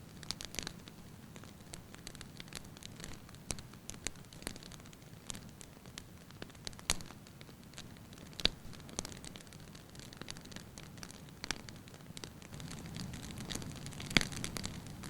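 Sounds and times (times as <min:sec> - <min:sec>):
logs crackling and popping: 0:00.0 - 0:15.0
fire hissing: 0:07.6 - 0:15.0.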